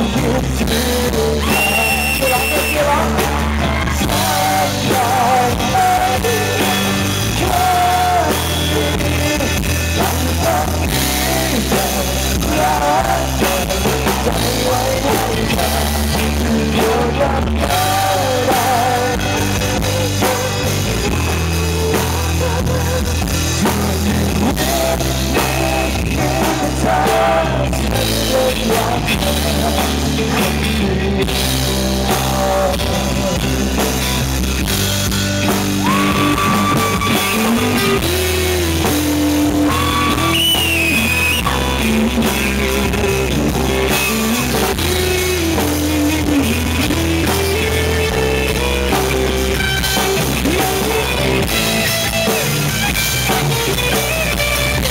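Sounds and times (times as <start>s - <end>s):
live rock band playing: 0.0s - 54.9s
sliding lead melody: 0.0s - 54.9s.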